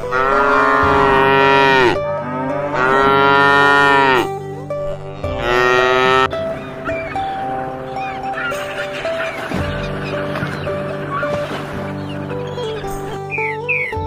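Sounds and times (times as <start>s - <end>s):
cow mooing: 0.0s - 4.3s, 4.9s - 6.4s
background music: 0.0s - 14.0s.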